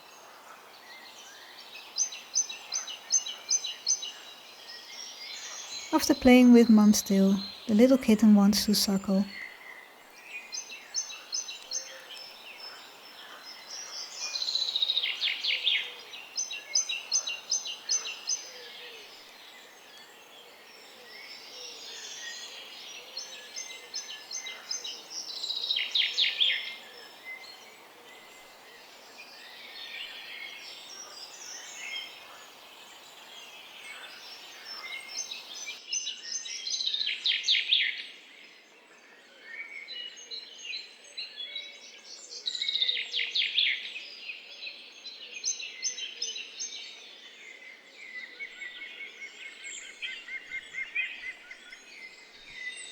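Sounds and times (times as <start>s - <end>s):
faint background noise: 0.0s - 37.3s
birds chirping: 5.9s - 9.4s.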